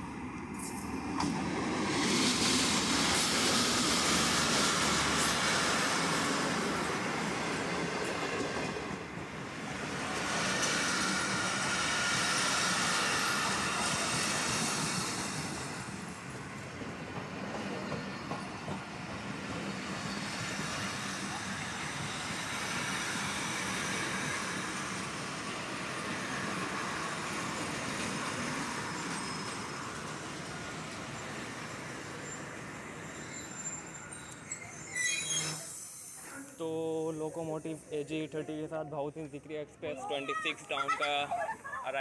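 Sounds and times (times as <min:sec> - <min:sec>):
high wheel squeals: 0:19.6 - 0:21.4, 0:28.6 - 0:30.3, 0:31.1 - 0:36.7.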